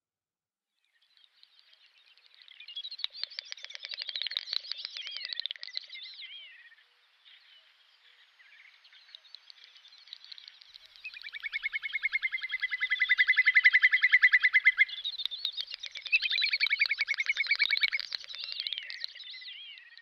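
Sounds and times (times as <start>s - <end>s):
birds calling: 2.0s - 20.0s
bird trilling rapidly: 11.0s - 19.0s.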